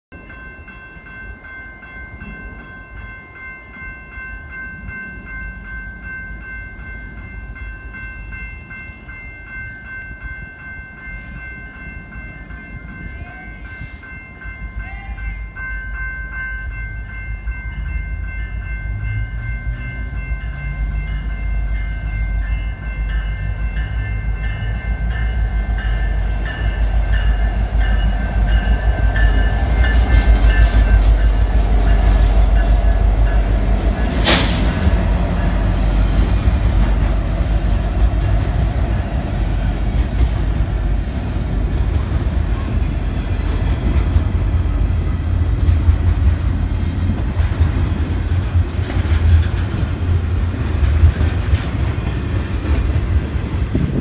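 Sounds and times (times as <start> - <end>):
diesel locomotives rumbling: 0.1 - 54.0
steady high ringing tones: 0.2 - 41.7.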